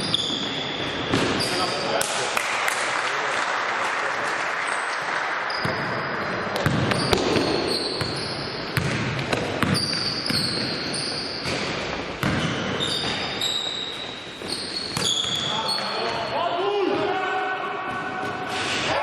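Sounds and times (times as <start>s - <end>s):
sneakers squeaking: 0.0s - 2.0s, 5.5s - 16.4s
sports hall noise: 0.0s - 19.0s
basketball bouncing on court: 5.5s - 16.2s.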